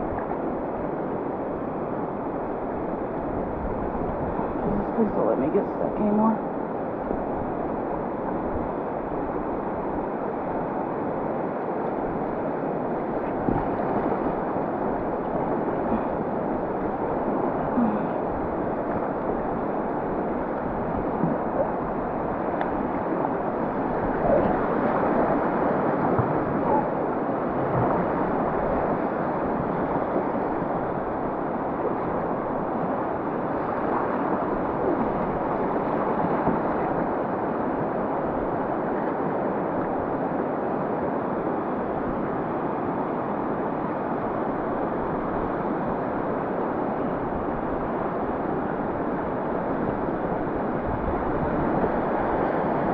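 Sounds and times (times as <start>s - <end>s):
river rapids rushing: 8.7s - 39.6s.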